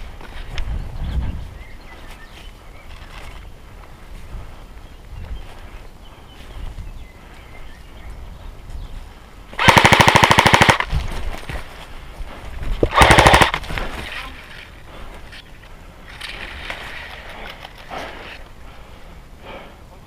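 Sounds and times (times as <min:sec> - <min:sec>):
airsoft gun full-auto bursts: 0:09.6 - 0:10.9, 0:12.8 - 0:13.7.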